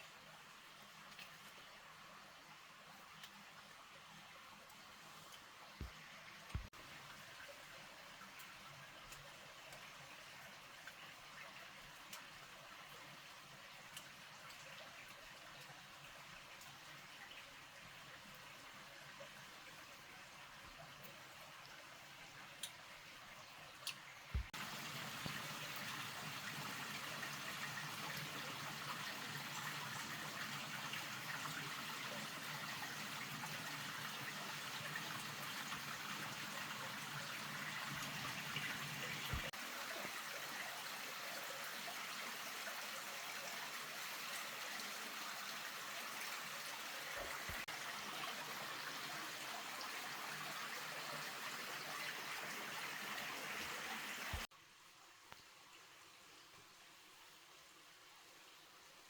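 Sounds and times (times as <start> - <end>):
water rushing: 24.3 - 54.5.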